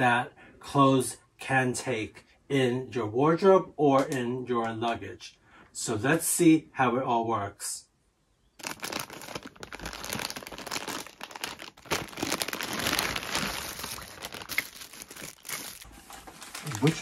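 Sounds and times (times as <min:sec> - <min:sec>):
plastic bags crinkling: 0:08.6 - 0:17.0.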